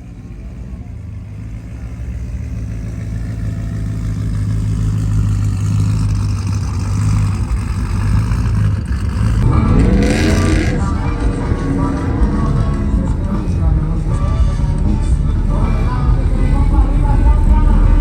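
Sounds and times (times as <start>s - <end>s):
truck engine droning: 0.0s - 18.0s.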